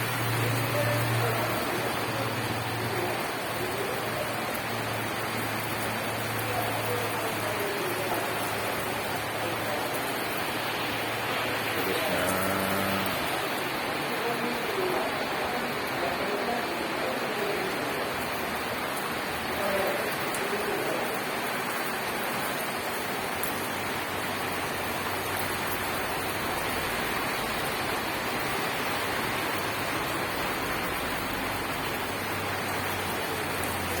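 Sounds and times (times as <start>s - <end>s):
rain falling steadily: 0.0s - 34.0s.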